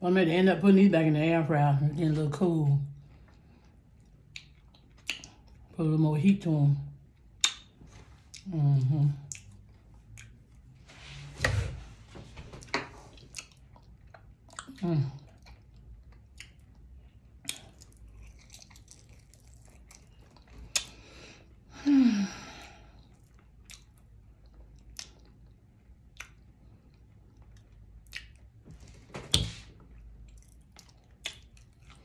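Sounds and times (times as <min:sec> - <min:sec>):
chewing food: 0:03.0 - 0:05.8, 0:07.1 - 0:10.8, 0:12.6 - 0:21.2, 0:22.9 - 0:32.0
lip smacks: 0:04.0 - 0:05.6, 0:07.3 - 0:08.5, 0:09.3 - 0:10.5, 0:16.2 - 0:21.0, 0:23.2 - 0:24.1, 0:24.7 - 0:28.6, 0:30.3 - 0:32.0.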